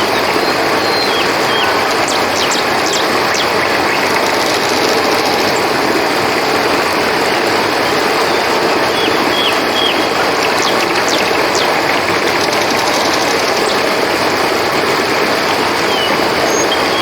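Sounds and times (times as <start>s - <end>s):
quick ticking trill: 0.0s - 6.1s, 9.0s - 14.4s
river water flowing: 0.0s - 17.0s.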